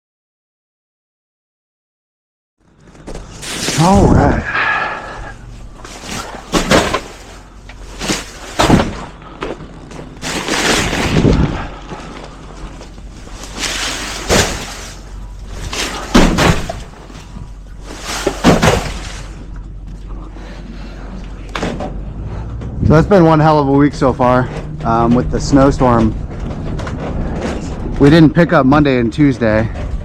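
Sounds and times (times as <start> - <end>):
rumbling noise: 2.7 - 30.0
loud bangs thuds and crashes: 5.8 - 9.4, 10.0 - 12.1, 12.8 - 19.4.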